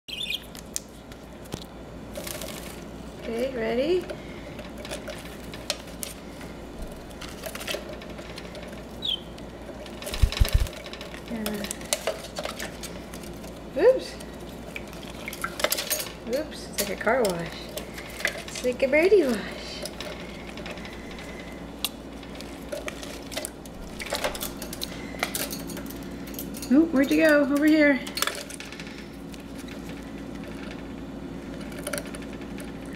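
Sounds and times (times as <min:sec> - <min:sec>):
budgie chirp: 0:00.1 - 0:00.5, 0:09.0 - 0:09.3.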